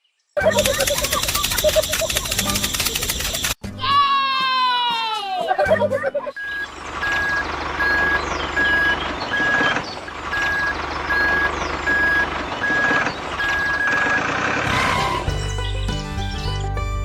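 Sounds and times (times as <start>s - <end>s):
background mechanical noise: 0.4s - 3.6s, 6.1s - 15.3s
music: 3.6s - 6.0s, 14.7s - 17.0s
reversing alarm beeping: 5.6s - 15.8s.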